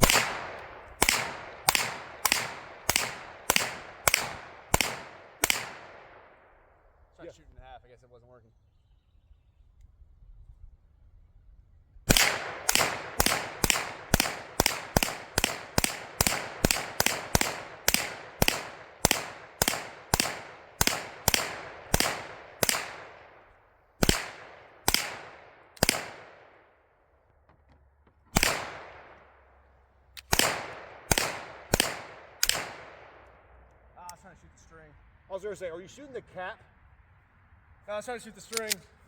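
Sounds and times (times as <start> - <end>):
gunshots with echo: 0.0 - 6.4, 12.1 - 23.4, 24.0 - 26.6, 28.4 - 29.1, 30.3 - 33.2.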